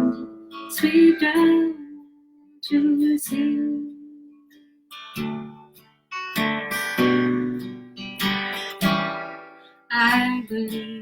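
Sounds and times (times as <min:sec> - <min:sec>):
acoustic guitar strumming chords: 0:00.0 - 0:01.9, 0:04.9 - 0:11.0.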